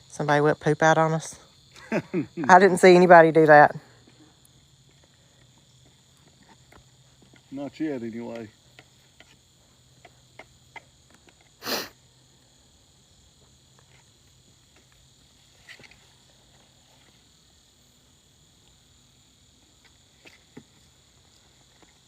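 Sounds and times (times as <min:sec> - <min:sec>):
crickets chirping: 0:00.0 - 0:22.0
sneeze-like burst: 0:11.6 - 0:12.0.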